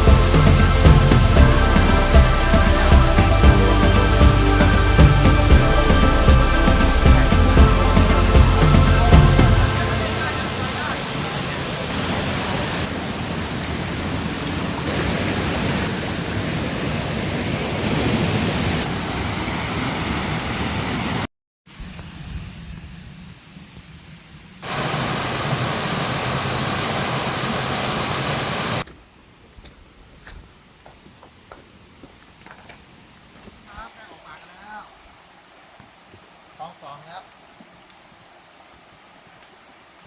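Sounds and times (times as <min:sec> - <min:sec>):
waterfall rushing: 0:00.0 - 0:21.3, 0:24.6 - 0:28.8.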